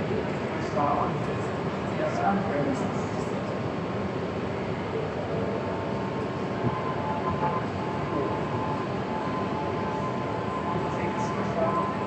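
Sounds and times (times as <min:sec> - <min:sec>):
faint even whine: 0:04.7 - 0:12.0.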